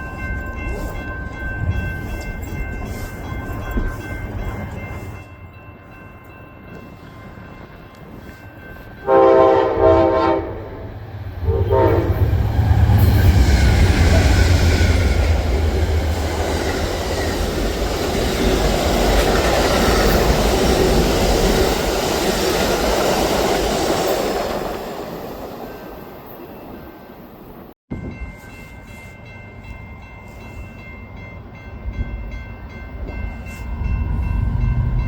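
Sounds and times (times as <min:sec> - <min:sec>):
train rumbling past: 0:00.0 - 0:35.0
locomotive air horn: 0:09.0 - 0:12.4.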